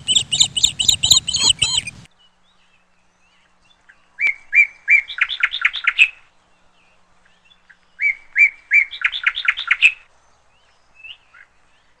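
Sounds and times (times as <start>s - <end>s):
bird singing quick chirps: 0.0s - 2.1s.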